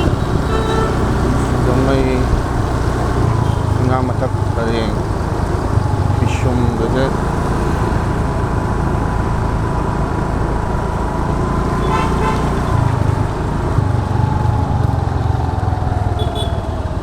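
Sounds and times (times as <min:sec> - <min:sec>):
vehicle horn toot: 0:00.0 - 0:02.0, 0:11.8 - 0:12.9, 0:16.2 - 0:16.7
motor scooter engine whine: 0:00.0 - 0:17.0.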